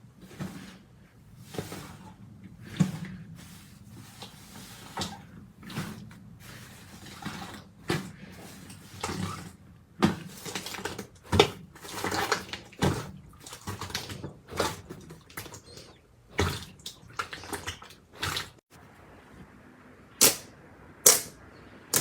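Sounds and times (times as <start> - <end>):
slime squelching by hand: 0.0 - 18.6
sticky pops: 20.2 - 20.4.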